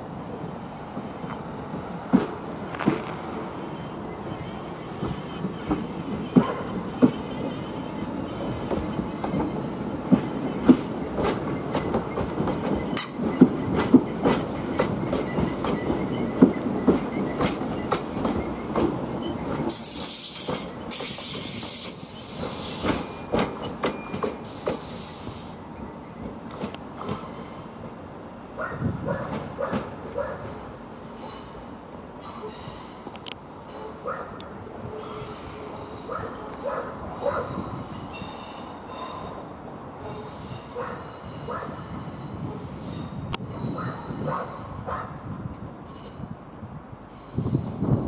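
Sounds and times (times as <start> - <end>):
low train rumble: 0.0 - 48.0
train wheels knocking over joints: 8.5 - 25.4.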